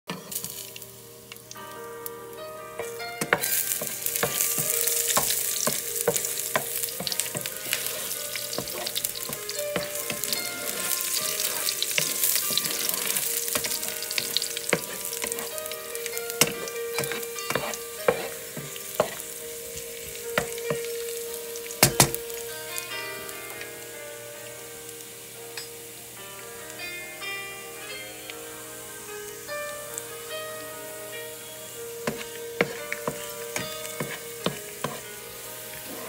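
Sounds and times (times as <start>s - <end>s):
garlic sizzling in hot oil: 0.1s - 36.0s
wooden spoon stirring and scraping: 2.8s - 15.8s, 16.4s - 19.2s, 32.0s - 35.1s, 35.7s - 36.0s.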